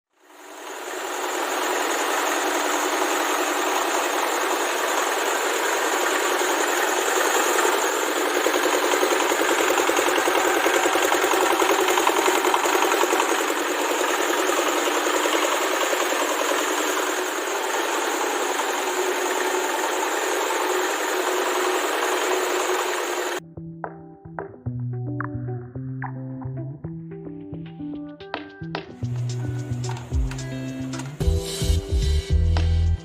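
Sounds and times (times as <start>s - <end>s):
rice milling machine running: 0.2s - 23.4s.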